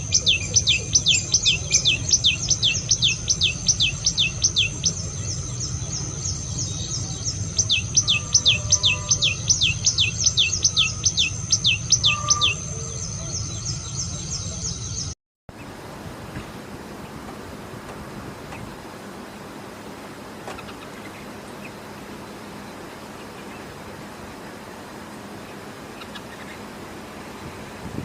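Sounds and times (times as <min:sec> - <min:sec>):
bird whistling calls: 0:00.0 - 0:14.6.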